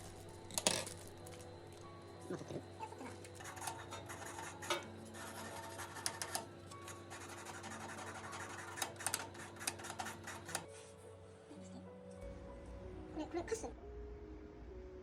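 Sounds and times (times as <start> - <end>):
small objects clicking and rubbing: 0.0 - 1.9
faint steady hum: 0.0 - 15.0.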